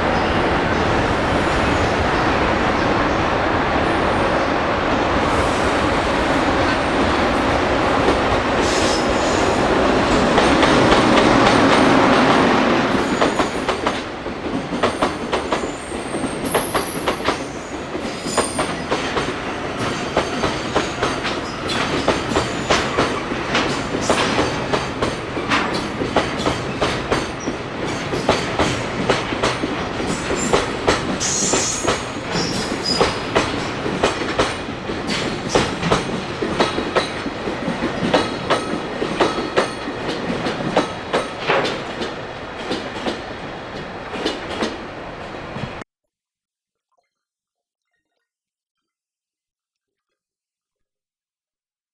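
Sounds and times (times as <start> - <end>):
freight train rumbling past: 0.0 - 45.8
high wheel squeals: 31.2 - 33.3.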